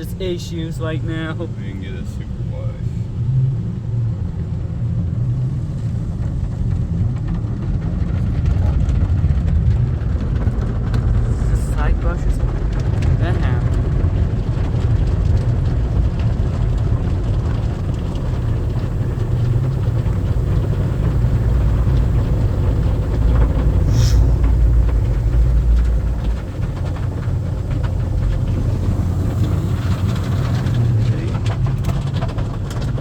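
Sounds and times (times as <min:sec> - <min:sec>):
car wash brushes rumbling: 0:00.0 - 0:33.0
water spraying on car body: 0:10.0 - 0:33.0
short hiss: 0:23.8 - 0:24.5.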